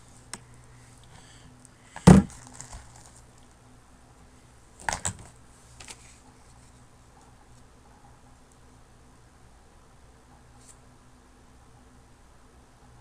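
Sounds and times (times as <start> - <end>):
items knocking and clattering: 2.0 - 3.0
packaging crinkling: 2.0 - 3.3.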